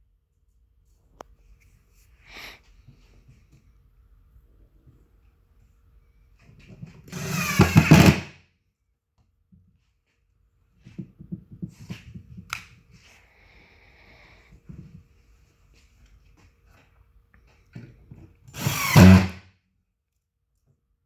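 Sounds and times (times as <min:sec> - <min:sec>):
power drill driving screw: 0:07.1 - 0:08.4, 0:18.5 - 0:19.4.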